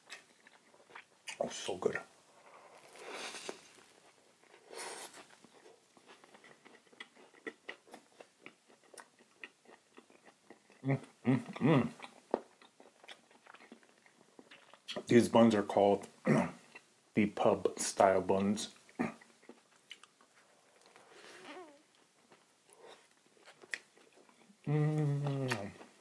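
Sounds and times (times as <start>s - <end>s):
close chewing of food: 0.0s - 15.1s, 16.0s - 17.0s, 18.7s - 26.0s
person humming: 24.6s - 25.9s.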